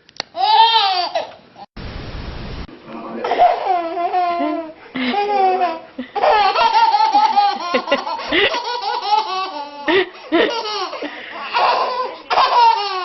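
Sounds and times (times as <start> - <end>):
high-pitched laughter: 3.3 - 13.0.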